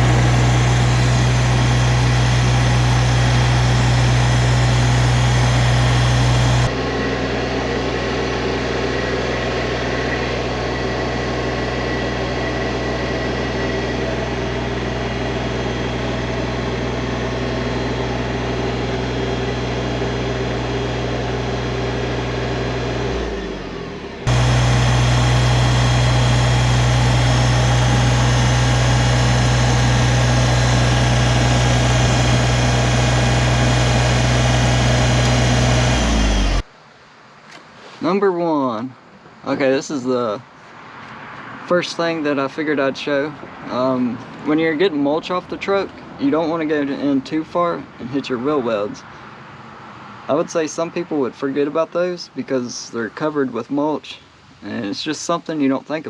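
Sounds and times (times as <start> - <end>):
tractor diesel engine idling: 0.0 - 36.7.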